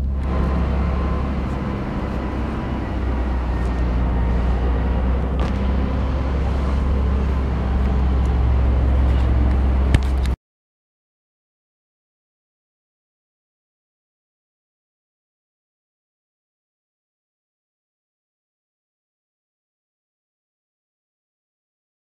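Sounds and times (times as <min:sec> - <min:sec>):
gas engine generator running: 0:00.0 - 0:10.4.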